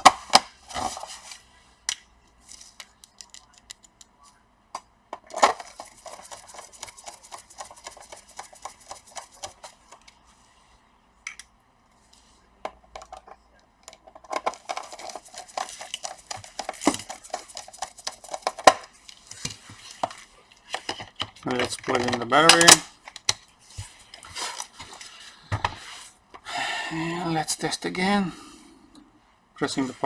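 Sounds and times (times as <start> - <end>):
laptop parts clicking and clinking: 1.9 - 4.2.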